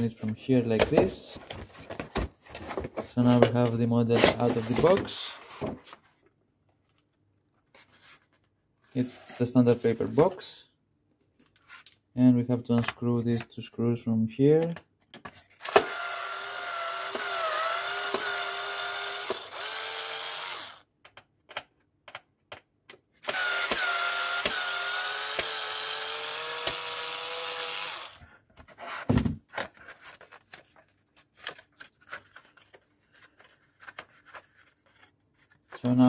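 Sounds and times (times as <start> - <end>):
electric screwdriver whining: 15.6 - 20.8, 23.2 - 28.2.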